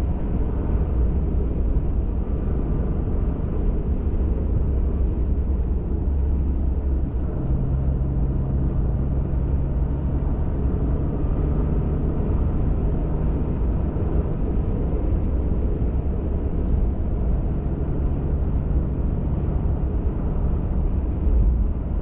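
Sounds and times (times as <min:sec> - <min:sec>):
tyre and road rumble: 0:00.0 - 0:22.0.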